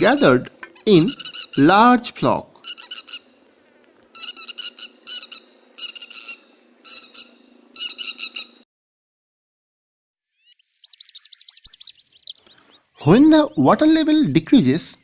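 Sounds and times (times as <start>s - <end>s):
lapwings calling: 0.0s - 1.9s, 2.6s - 8.6s, 10.4s - 14.0s
faint steady hum: 0.0s - 8.6s.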